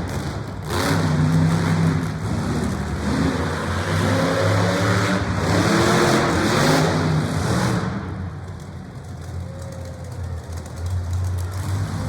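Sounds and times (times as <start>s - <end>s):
broad noisy background: 0.0s - 12.0s
engine revving: 0.6s - 8.0s.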